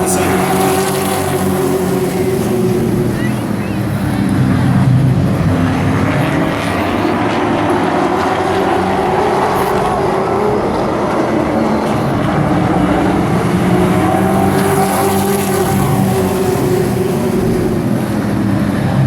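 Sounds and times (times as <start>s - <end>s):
race truck engines: 0.0s - 19.0s.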